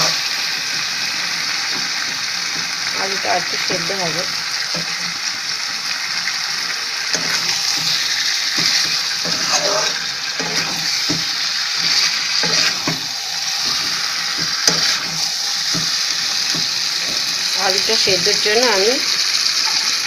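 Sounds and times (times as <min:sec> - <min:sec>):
curry sizzling: 0:00.0 - 0:20.0
metal spatula scraping: 0:07.0 - 0:18.6.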